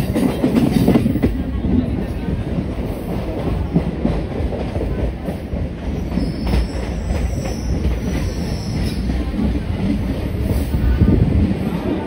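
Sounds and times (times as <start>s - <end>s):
train wheels rumbling on track: 0.0s - 12.0s
high wheel squeal on rails: 5.9s - 9.3s.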